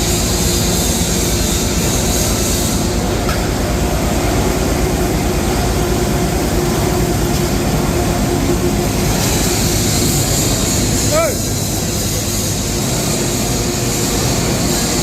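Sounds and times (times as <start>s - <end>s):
machinery rumbling and humming: 0.0s - 15.0s.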